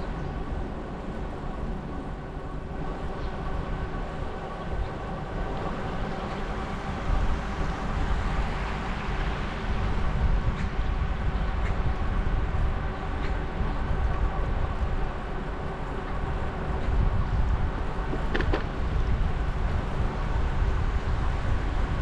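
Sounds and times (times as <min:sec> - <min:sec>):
wind rumble: 0:00.0 - 0:22.0.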